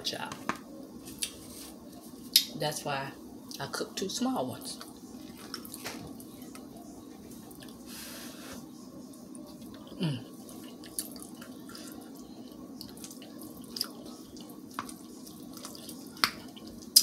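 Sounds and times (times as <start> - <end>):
steady low hum: 0.0 - 17.0
wet chewing and lip smacks: 12.7 - 17.0.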